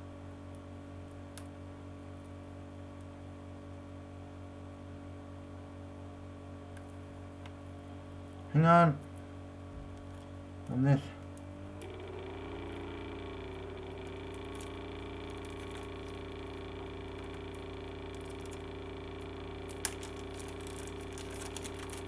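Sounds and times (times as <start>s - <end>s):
steady low hum: 4.8s - 22.0s.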